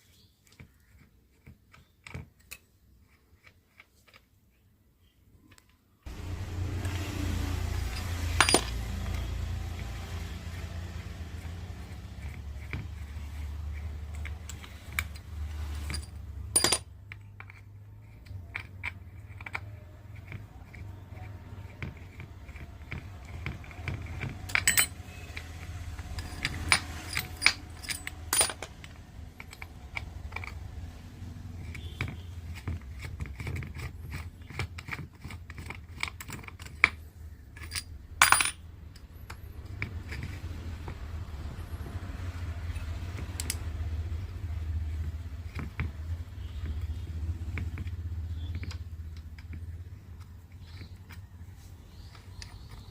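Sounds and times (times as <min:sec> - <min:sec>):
steady low hum: 0:06.1 - 0:11.1
metal tools clinking: 0:06.1 - 0:19.7, 0:23.3 - 0:30.6, 0:37.5 - 0:39.0.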